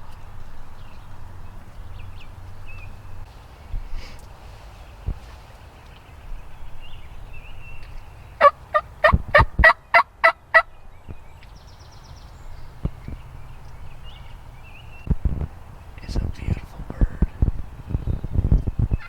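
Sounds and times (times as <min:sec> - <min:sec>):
faint songbird chirps: 0:00.0 - 0:08.5, 0:10.6 - 0:15.2
turkey calls: 0:08.4 - 0:10.7.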